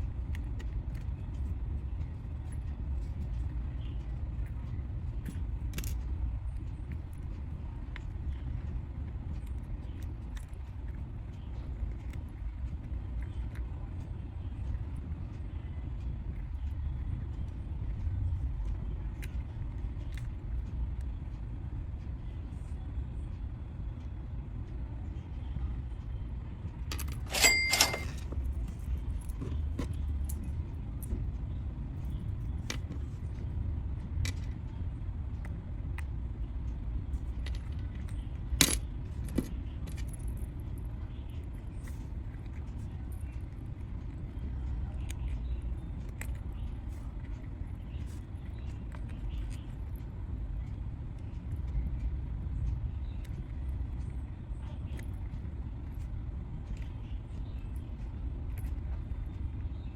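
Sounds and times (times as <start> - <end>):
steady low rumble: 0.0 - 59.9
metallic jingle: 26.9 - 28.3.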